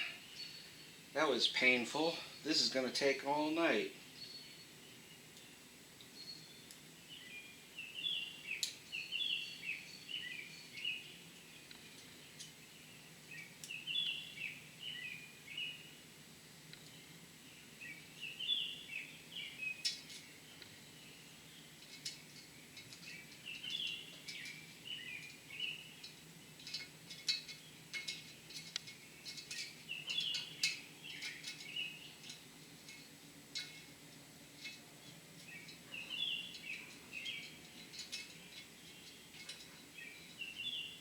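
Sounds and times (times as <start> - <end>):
small birds chirping: 0.0 - 41.0
metallic clicks of hand tools: 26.0 - 34.8.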